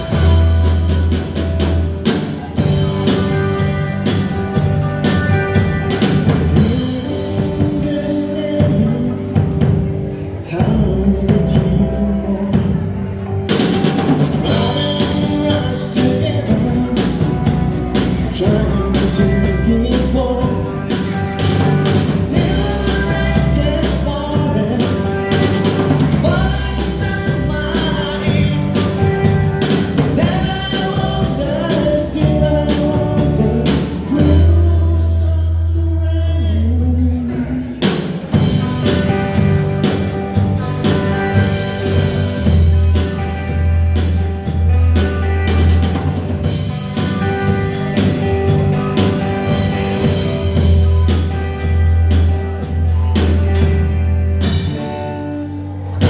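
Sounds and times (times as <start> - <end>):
drum kit: 0.0 - 35.8, 37.2 - 56.0
bass guitar: 0.0 - 56.0
electric guitars: 0.0 - 56.0
man singing lead vocal: 6.0 - 13.2, 14.2 - 39.1.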